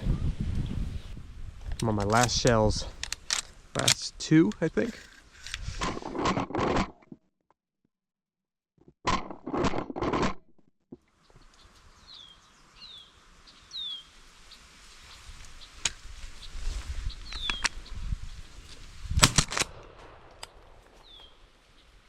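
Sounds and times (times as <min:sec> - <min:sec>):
shotgun shot: 0:19.2 - 0:21.0.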